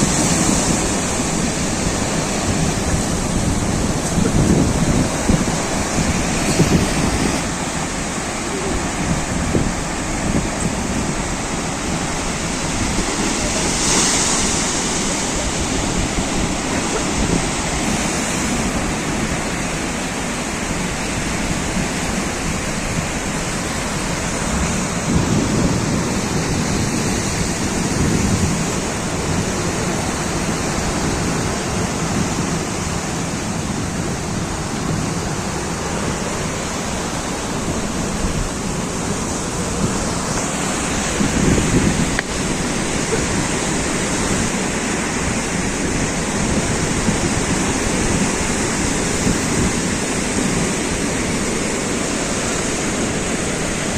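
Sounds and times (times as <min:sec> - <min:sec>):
sea waves breaking: 0:00.0 - 0:53.9.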